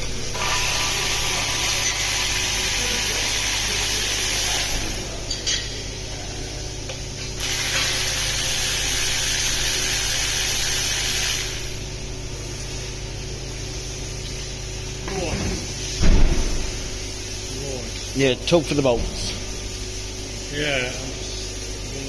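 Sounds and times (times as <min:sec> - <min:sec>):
hissing spray: 0:00.2 - 0:05.1.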